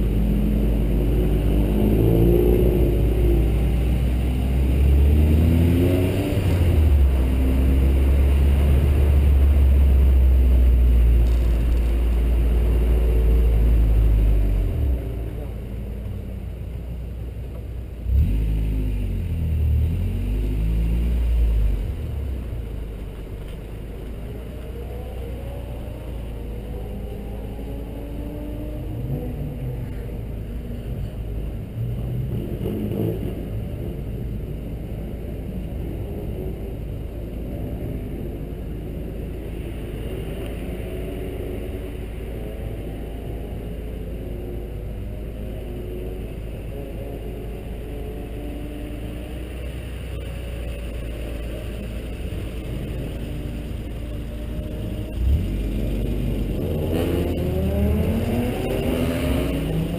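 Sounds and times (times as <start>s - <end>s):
car engine running: 49.2s - 58.6s.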